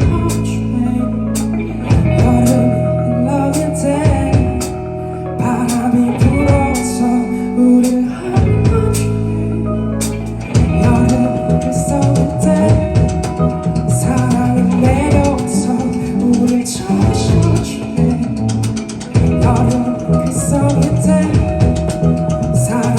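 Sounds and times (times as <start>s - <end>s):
drums steady beat: 0.0s - 0.5s, 1.4s - 2.7s, 4.0s - 4.9s, 5.7s - 7.0s, 7.8s - 9.2s, 10.0s - 22.9s
live band playing: 0.0s - 22.9s.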